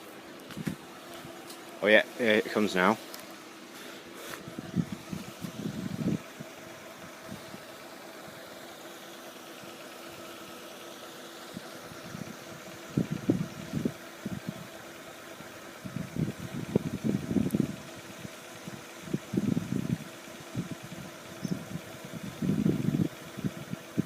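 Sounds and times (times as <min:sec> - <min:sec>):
engine hum: 0:00.0 - 0:24.0
low rumbling bursts: 0:00.6 - 0:08.6.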